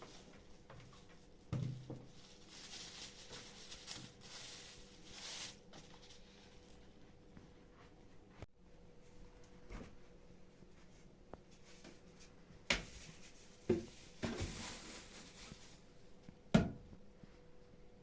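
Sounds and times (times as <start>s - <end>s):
kitchen knocks and clatters: 0.8s - 2.2s, 16.6s - 17.0s.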